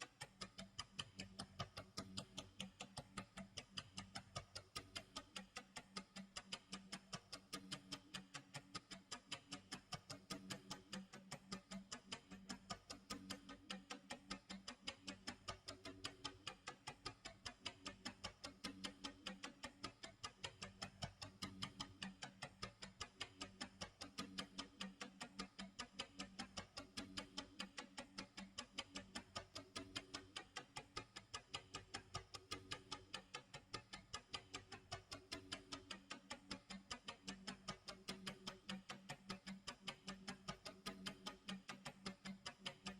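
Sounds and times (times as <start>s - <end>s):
clock ticking: 0.0s - 42.9s.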